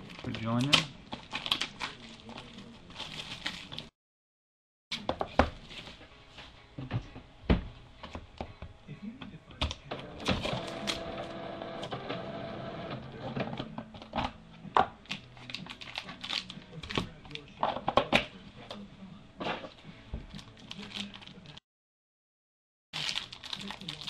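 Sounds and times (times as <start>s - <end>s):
card packs being opened: 0.0s - 3.9s, 15.0s - 17.5s, 19.6s - 21.6s, 23.0s - 24.0s
wrappers crinkling: 0.0s - 3.9s, 15.0s - 17.4s, 20.3s - 21.6s, 23.0s - 24.0s.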